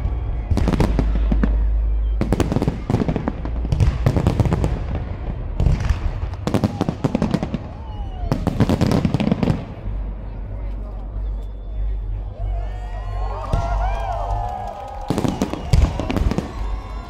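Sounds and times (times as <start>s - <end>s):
firework crackling: 13.6s - 17.0s.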